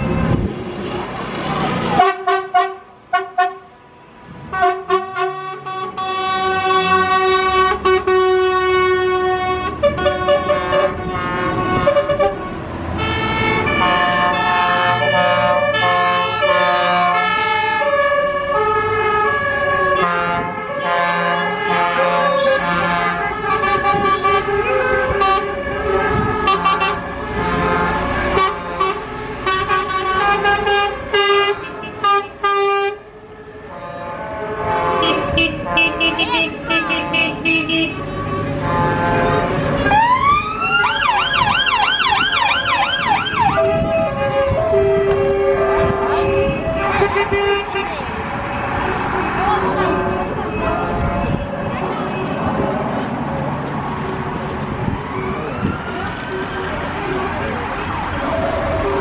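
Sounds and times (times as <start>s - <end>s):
musical vehicle horn: 2.0s - 3.7s, 4.5s - 17.8s, 19.8s - 25.5s, 26.1s - 33.0s, 33.7s - 39.6s.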